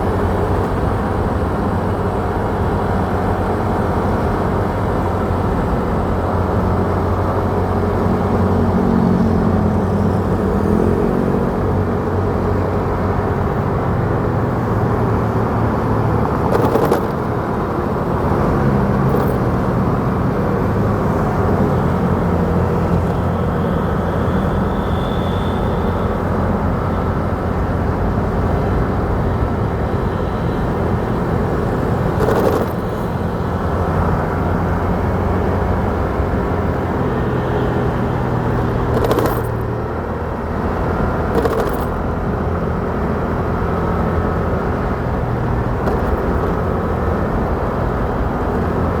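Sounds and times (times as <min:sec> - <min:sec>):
road and wind noise: 0:00.0 - 0:49.0
motorcycle engine running: 0:13.1 - 0:49.0.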